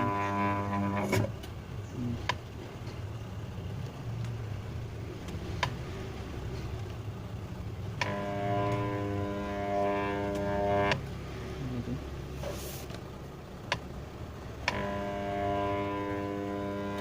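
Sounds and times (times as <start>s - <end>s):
washing machine motor humming: 0.0s - 17.0s
sharp clicks: 13.6s - 13.9s.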